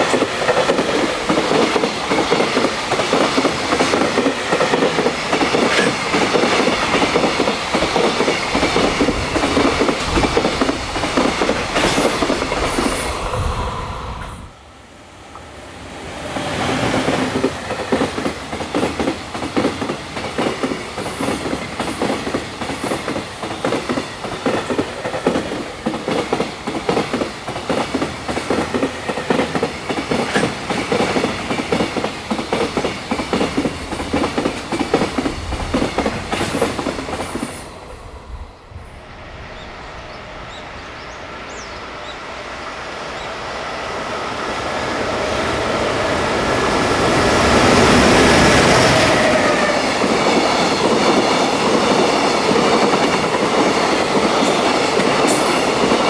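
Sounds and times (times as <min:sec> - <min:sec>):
approaching train rumble: 0:00.0 - 0:56.0
train wheels clattering over rail joints: 0:16.9 - 0:37.6.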